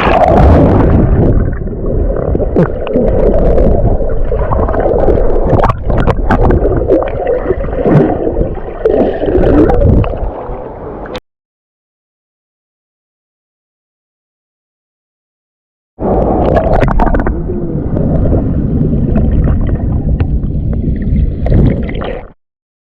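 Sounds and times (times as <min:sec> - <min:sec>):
water gurgling and sloshing: 0:00.0 - 0:11.2, 0:16.0 - 0:22.4.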